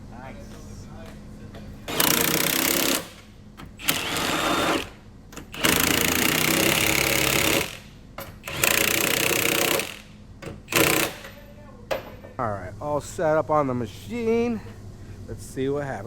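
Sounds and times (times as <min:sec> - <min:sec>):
pneumatic power tool running: 0:01.9 - 0:11.4.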